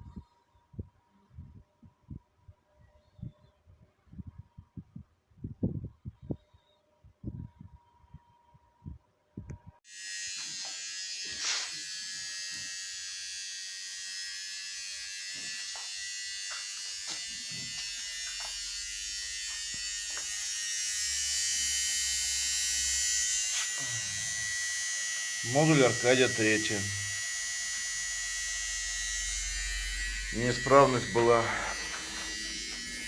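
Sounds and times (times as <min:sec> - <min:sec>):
electric motor whirring with hiss: 0:09.9 - 0:33.0.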